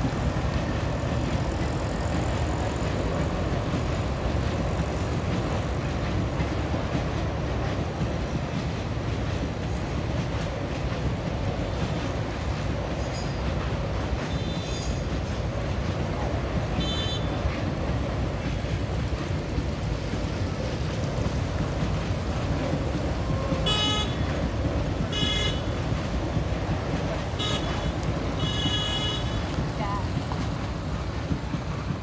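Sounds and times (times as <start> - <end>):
train rumbling over bridge: 0.0 - 32.0
train horn toots: 14.3 - 15.0, 16.8 - 17.4, 23.6 - 24.4, 25.1 - 25.9, 27.4 - 29.6.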